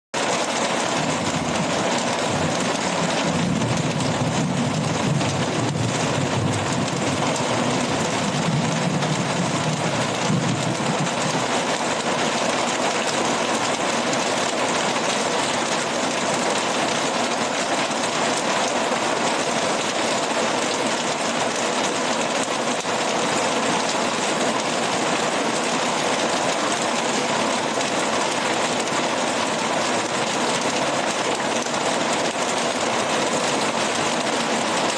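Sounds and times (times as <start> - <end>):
heavy rain pouring: 0.2 - 34.9.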